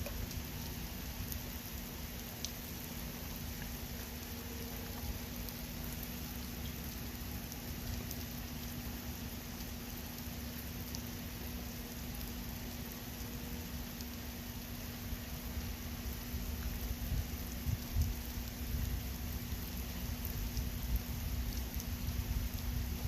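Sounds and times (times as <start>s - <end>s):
steady rain falling: 0.0s - 23.0s
water drops ticking: 2.4s - 8.7s.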